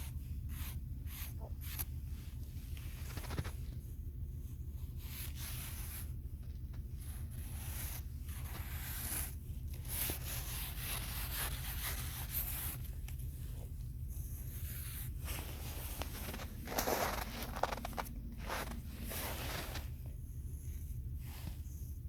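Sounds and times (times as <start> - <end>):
steady low rumble: 0.0 - 22.0
rough scraping strokes: 14.2 - 20.0.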